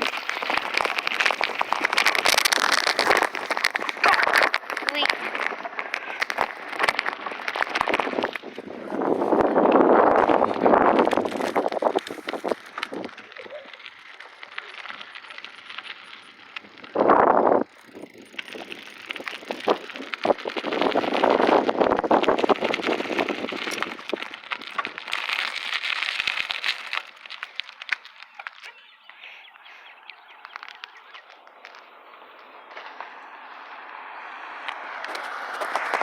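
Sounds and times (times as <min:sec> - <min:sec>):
wind buffeting microphone: 0:00.0 - 0:14.2, 0:14.8 - 0:25.2.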